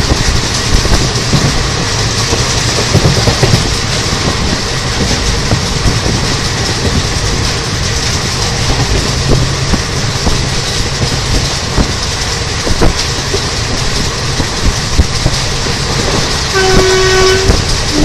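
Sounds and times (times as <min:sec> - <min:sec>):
express train rail noise: 0:00.0 - 0:18.0
train horn: 0:16.4 - 0:18.0.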